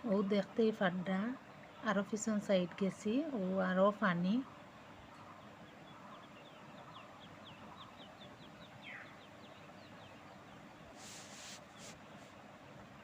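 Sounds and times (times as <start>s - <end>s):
bird peeping: 5.1s - 12.3s.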